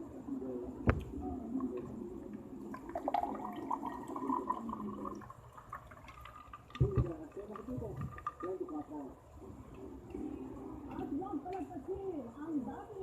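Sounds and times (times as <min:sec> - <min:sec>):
liquid pouring into a glass: 0:02.5 - 0:09.1.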